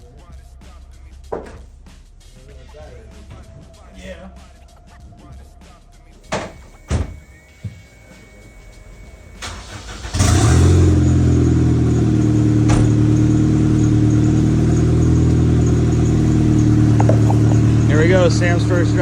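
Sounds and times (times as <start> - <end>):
car engine starting and idling: 6.3 - 19.0.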